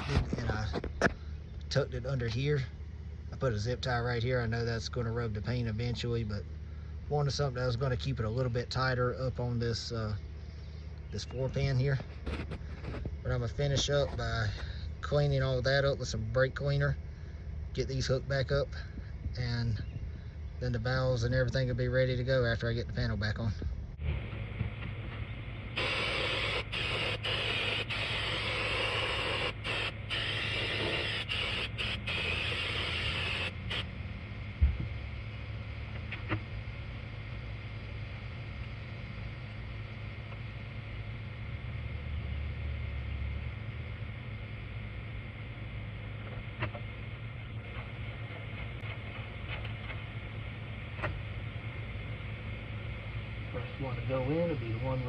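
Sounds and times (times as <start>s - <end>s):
low mechanical hum: 0.0s - 55.0s
aerosol can spraying: 25.8s - 33.8s.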